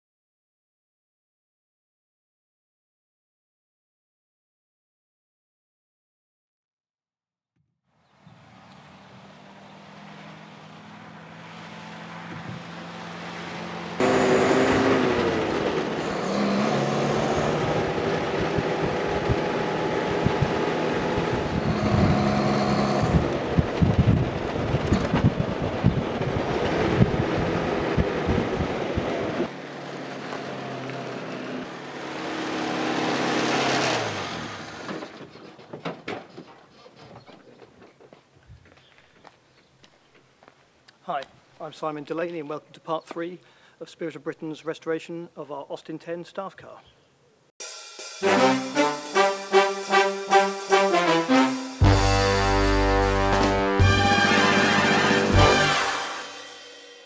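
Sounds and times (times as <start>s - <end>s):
wind and road noise: 8.0s - 35.9s
car engine running: 12.1s - 24.2s.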